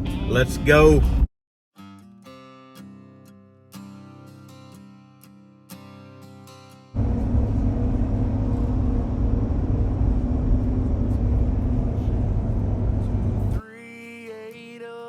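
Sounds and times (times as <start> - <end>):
vehicle engine rumbling: 7.0 - 13.6.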